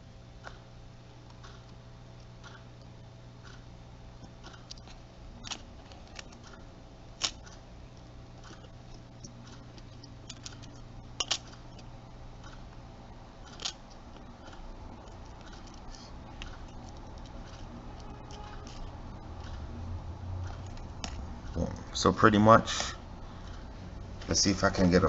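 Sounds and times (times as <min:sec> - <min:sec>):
low hum: 0:00.0 - 0:25.0
plastic parts clicking: 0:04.6 - 0:06.6, 0:09.8 - 0:11.9, 0:13.4 - 0:19.5.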